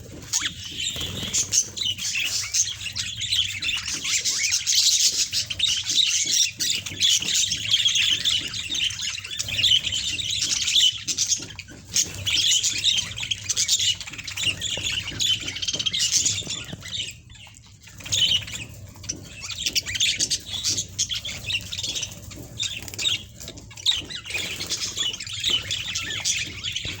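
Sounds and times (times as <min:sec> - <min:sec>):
budgerigars chattering and squawking: 0:00.0 - 0:27.0.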